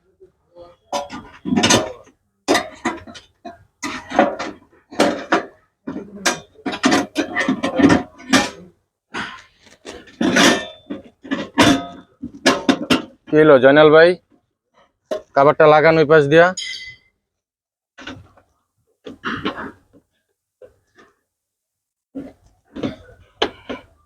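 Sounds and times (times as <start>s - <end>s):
sheet metal clattering and knocking: 0.9s - 8.8s, 9.8s - 13.6s.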